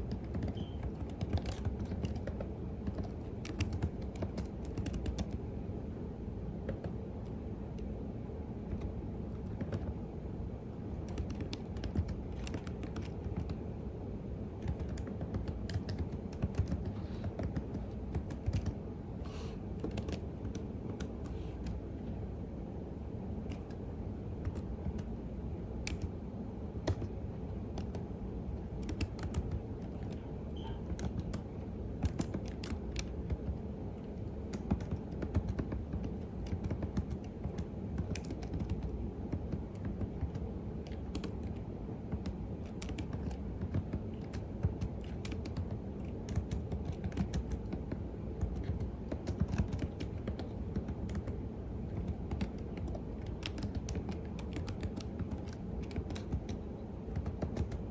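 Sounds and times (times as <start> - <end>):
steady low hum: 0.0 - 57.9
keyboard key clicks: 0.1 - 5.4, 11.0 - 13.6, 14.6 - 18.8, 19.8 - 21.8, 23.5 - 23.8, 25.8 - 26.1, 26.8 - 28.0, 28.8 - 33.6, 34.5 - 57.9.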